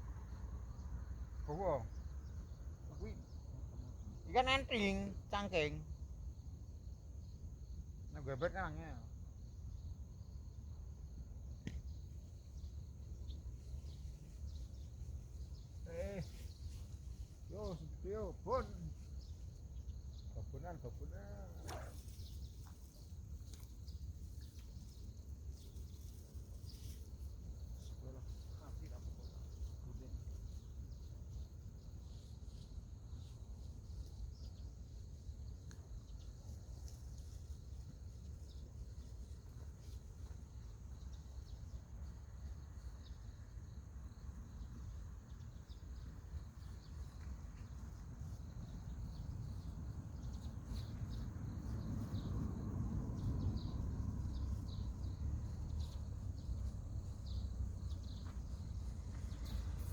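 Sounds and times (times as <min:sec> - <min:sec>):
short insect chirps: 0:09.4 - 0:59.9.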